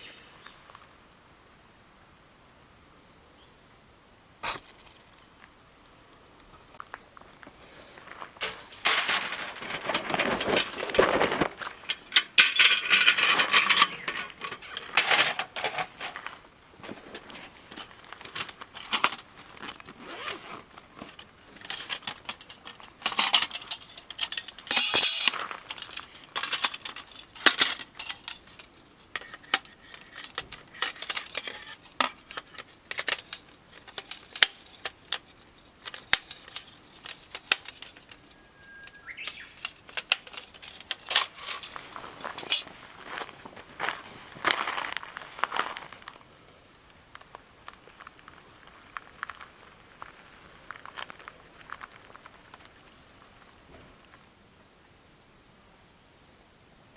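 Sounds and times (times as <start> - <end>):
rustling: 6.6 - 46.3
metallic clinks and taps: 20.8 - 28.6.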